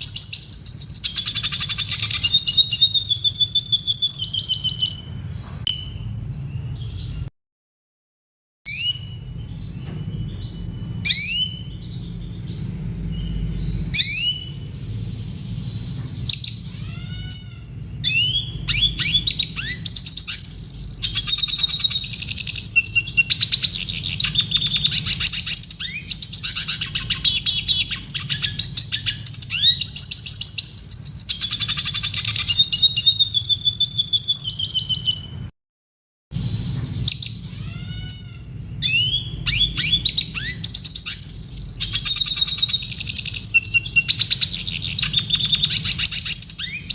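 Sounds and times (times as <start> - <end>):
bird twittering song: 0.0 - 7.3, 8.7 - 35.5, 36.4 - 46.9
steady low hum: 8.9 - 30.8.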